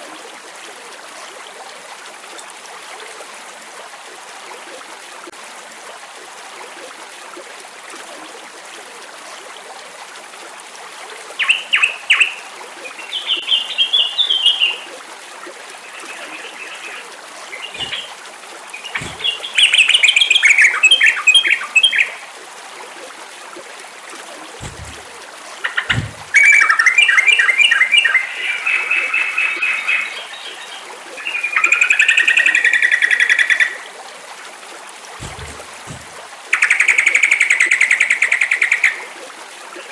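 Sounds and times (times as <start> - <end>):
flowing water hiss: 0.0 - 39.9
bird chirping bubbly phrases: 15.8 - 22.2, 24.6 - 33.8, 35.2 - 37.9.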